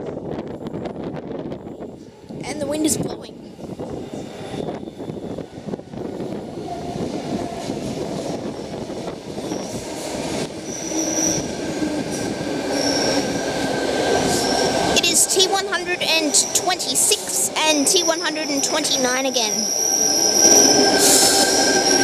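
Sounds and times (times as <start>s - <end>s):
electric train pulling in: 3.4s - 22.0s
high squeals of train brakes: 3.9s - 5.5s, 9.3s - 11.9s, 12.7s - 15.0s, 19.6s - 22.0s.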